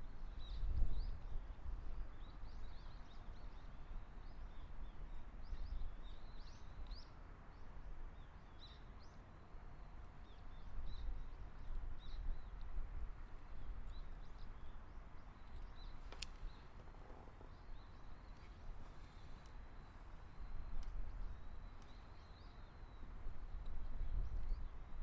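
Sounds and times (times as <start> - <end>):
small birds chirping: 13.3 - 23.0.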